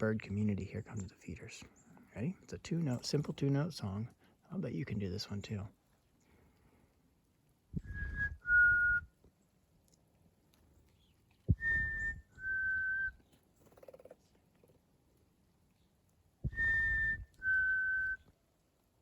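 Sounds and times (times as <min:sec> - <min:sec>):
person whistling two-note call: 0:07.9 - 0:09.1, 0:11.6 - 0:13.1, 0:16.5 - 0:18.2.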